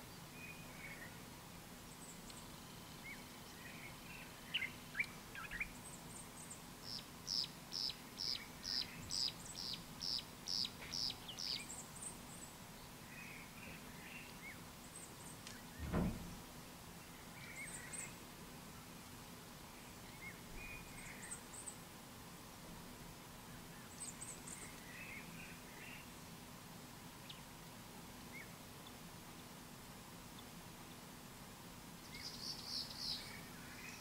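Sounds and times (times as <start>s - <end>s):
bird chirps: 3.1s - 12.5s, 32.0s - 34.0s
low thump: 15.8s - 16.4s.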